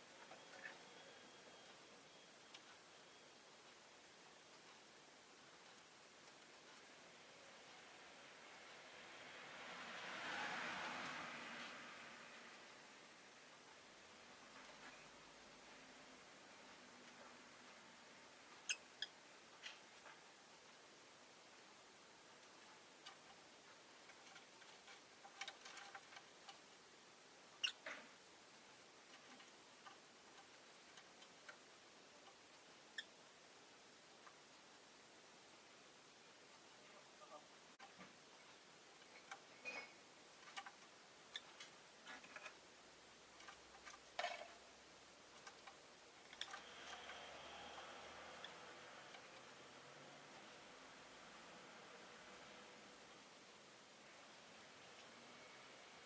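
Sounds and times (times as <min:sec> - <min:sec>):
faint steady hum: 0:00.0 - 0:56.0
faint light clicks and ticks: 0:03.6 - 0:08.8, 0:22.4 - 0:26.7, 0:45.3 - 0:51.0.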